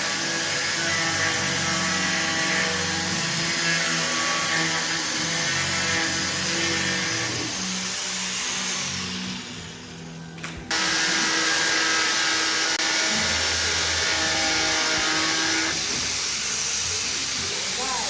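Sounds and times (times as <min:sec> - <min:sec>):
electric cutter whining: 0:10.5 - 0:18.0.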